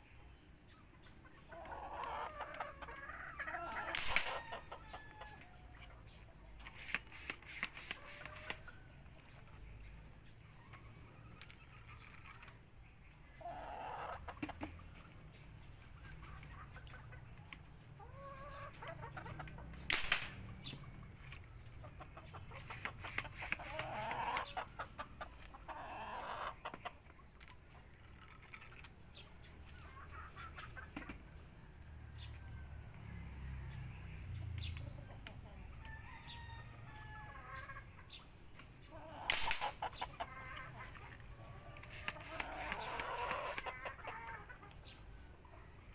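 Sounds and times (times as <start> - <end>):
chickens clucking: 0.0 - 45.9
pipe gun shots: 4.0 - 4.4, 19.9 - 20.5, 39.3 - 39.8.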